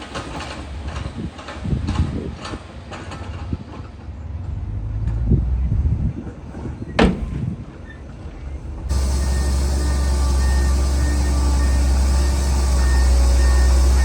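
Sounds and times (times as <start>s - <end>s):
sharp heavy knock: 7.0s - 7.4s
diesel engine droning: 8.6s - 14.0s.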